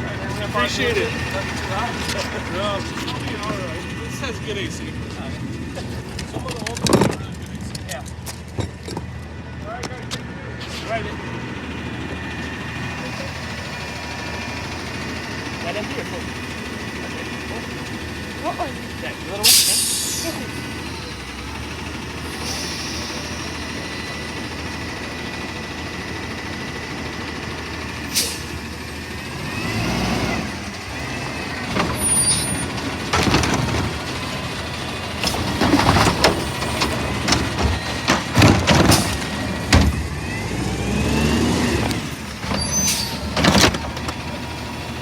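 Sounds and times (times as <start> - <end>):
hydraulic whines: 0.0 - 7.3, 10.6 - 45.0
garbage truck engine running: 0.0 - 45.0
bangs and clatters: 35.2 - 40.1.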